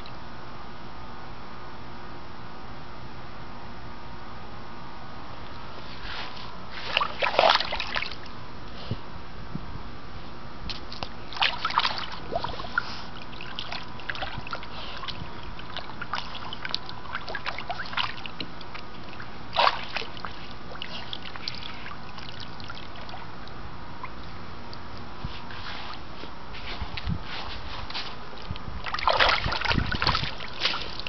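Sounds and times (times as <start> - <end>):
dog splashing in water: 6.9 - 8.2, 11.3 - 12.8, 19.5 - 23.2, 28.8 - 31.0.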